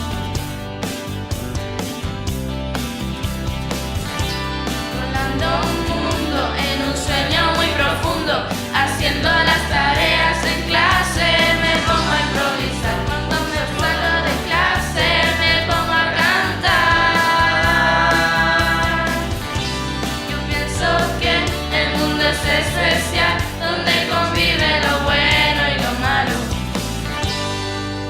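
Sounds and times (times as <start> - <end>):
band with bass and drums: 0.0 - 28.0
person singing: 5.0 - 19.3.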